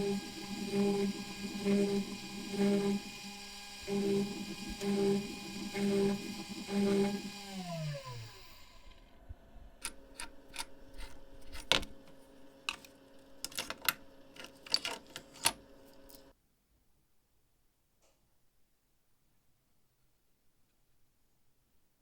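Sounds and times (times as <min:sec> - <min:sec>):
electric motor spinning down: 0:00.0 - 0:09.3
faint steady hum: 0:00.0 - 0:16.4
metal parts clicking and clinking: 0:12.7 - 0:15.6.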